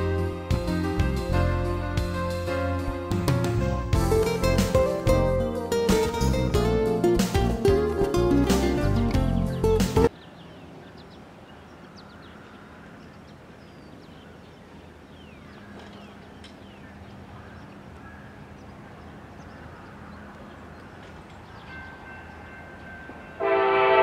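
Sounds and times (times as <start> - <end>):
acoustic guitar music: 0.0 - 10.1
birds chirping: 4.1 - 23.4.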